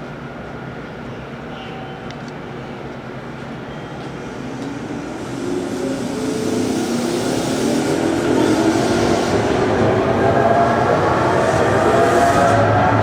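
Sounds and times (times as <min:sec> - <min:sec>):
electric train motor whine: 0:04.0 - 0:13.0.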